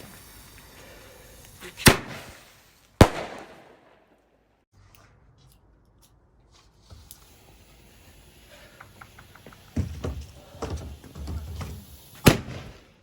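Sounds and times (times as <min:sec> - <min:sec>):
firework bangs: 0:01.6 - 0:04.1, 0:11.9 - 0:12.9.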